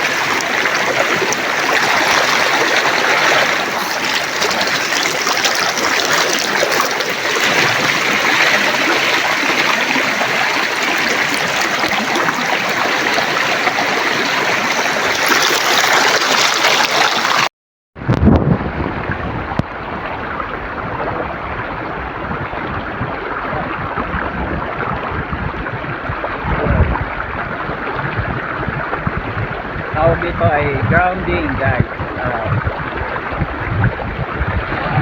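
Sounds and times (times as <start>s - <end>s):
river stream rushing and gurgling: 0.0s - 17.5s.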